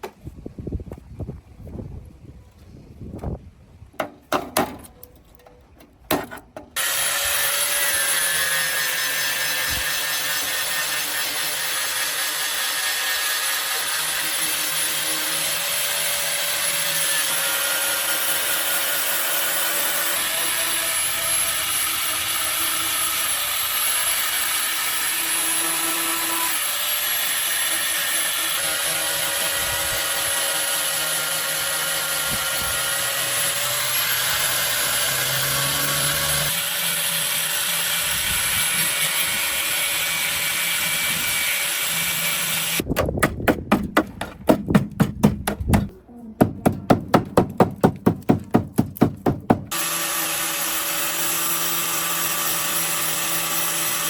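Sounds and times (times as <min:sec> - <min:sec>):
abrasive power tool on metal: 0:06.7 - 0:42.9, 0:46.5 - 0:54.0
sharp knocks: 0:42.9 - 0:49.8.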